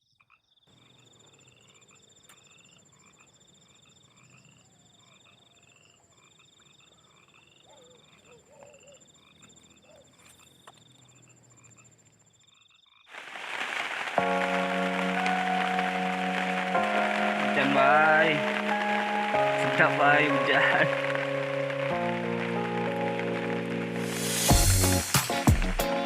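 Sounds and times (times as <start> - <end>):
frogs calling: 0.0 - 24.2
lower warbling frog calls: 0.3 - 13.1
high pulsing insect drone: 0.8 - 12.9
rain hissing: 13.1 - 26.0.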